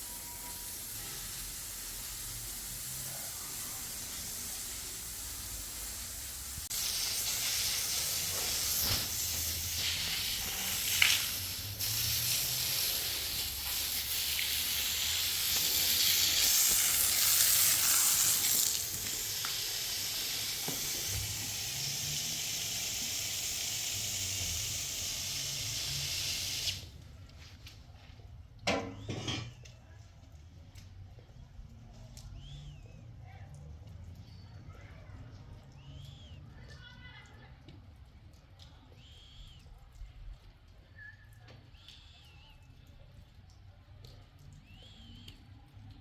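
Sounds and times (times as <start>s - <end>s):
steady hissing noise: 0.0s - 27.0s.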